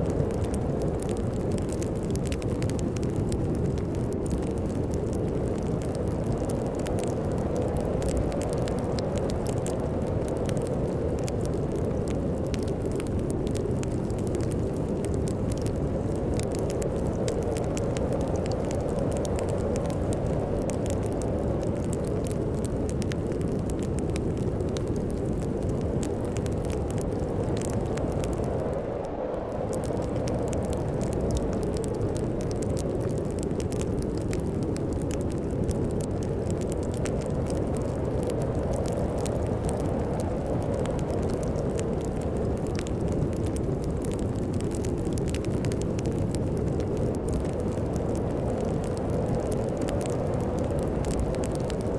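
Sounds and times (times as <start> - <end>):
fireplace crackling and popping: 0.0 - 51.9
low rumble of storm wind: 0.0 - 51.9.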